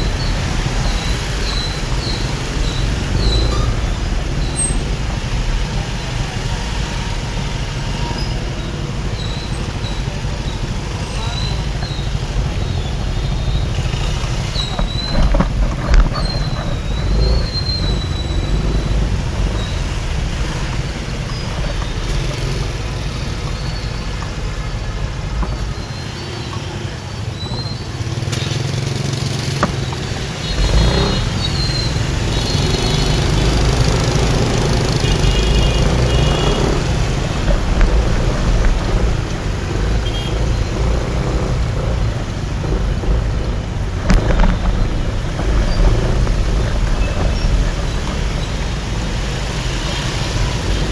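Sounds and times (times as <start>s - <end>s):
motorbike engine: 0.0s - 50.9s
wind rumble on microphone: 11.6s - 24.1s, 30.0s - 50.9s
vehicle horn beeps: 34.9s - 36.9s, 40.0s - 40.5s.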